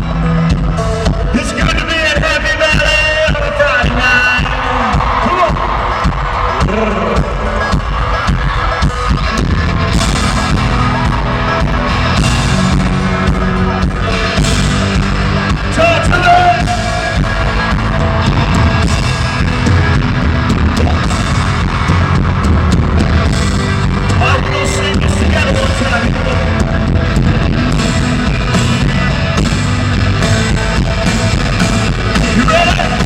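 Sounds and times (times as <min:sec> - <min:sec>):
live country-rock band: 0:00.0 - 0:33.0.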